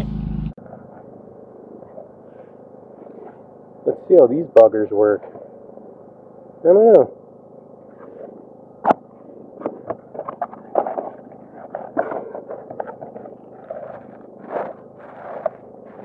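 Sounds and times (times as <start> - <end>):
crinkly rustling: 9.1 - 16.0.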